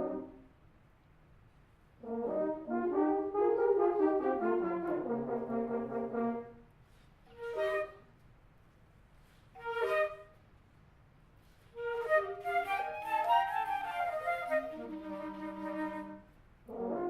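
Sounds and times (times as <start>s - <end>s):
wind band playing chords: 0.0s - 0.4s, 2.0s - 6.6s, 14.1s - 17.0s.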